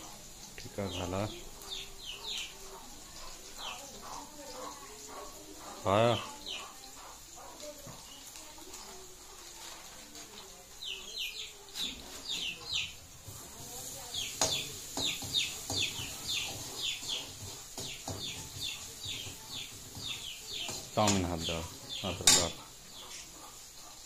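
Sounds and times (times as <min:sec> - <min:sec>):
small bird chirping: 0:00.8 - 0:07.1, 0:14.0 - 0:24.0.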